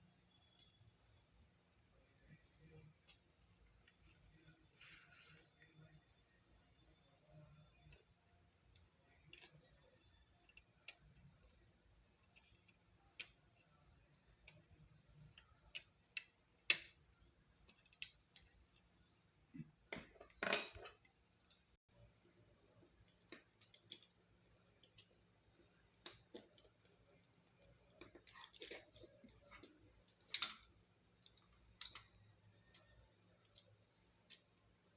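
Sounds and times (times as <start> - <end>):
small parts clicking and tapping: 1.7 - 34.9.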